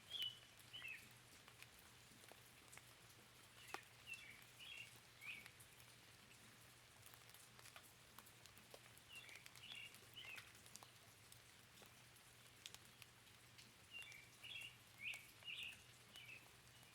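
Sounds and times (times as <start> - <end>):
songbird chirping: 0.0 - 1.1, 3.6 - 5.6, 9.1 - 11.0, 13.9 - 16.9
raindrops ticking: 0.0 - 16.9.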